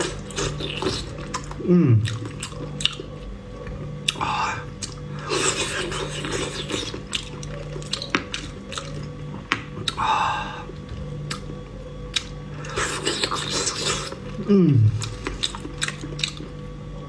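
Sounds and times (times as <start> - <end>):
wet chewing mouth sounds: 0.0 - 16.6
faint steady hum: 0.0 - 17.0.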